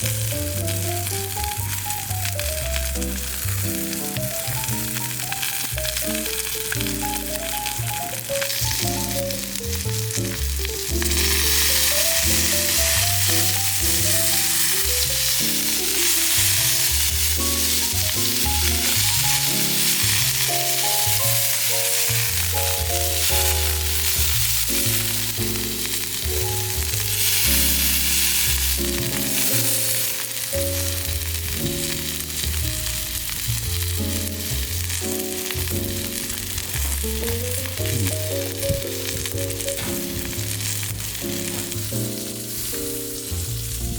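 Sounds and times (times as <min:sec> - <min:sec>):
background music: 0:00.0 - 0:43.9
steak sizzling on hot plate: 0:00.0 - 0:43.9.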